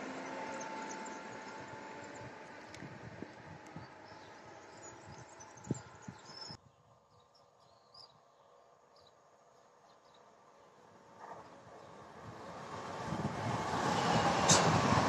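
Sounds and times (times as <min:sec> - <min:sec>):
train rumbling: 0:00.0 - 0:06.6, 0:11.0 - 0:15.0.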